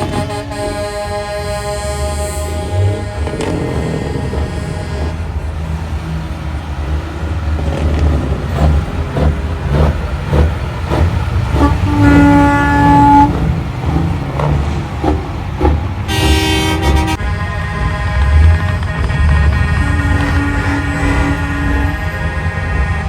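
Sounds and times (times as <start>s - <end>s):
truck air horn blasts: 0.0s - 5.8s, 11.0s - 13.6s, 16.0s - 23.0s
low rumble of truck engines: 0.0s - 23.0s.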